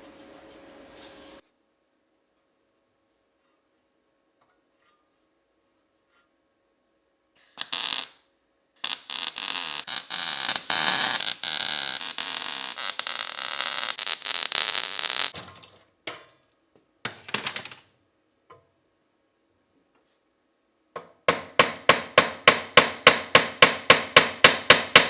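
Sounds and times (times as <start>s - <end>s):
mig welder crackling: 7.4s - 8.2s, 8.8s - 15.4s.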